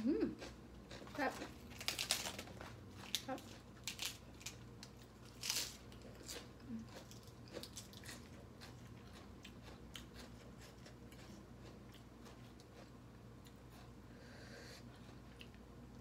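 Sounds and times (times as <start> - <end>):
crunchy chewing: 0.4 - 14.0.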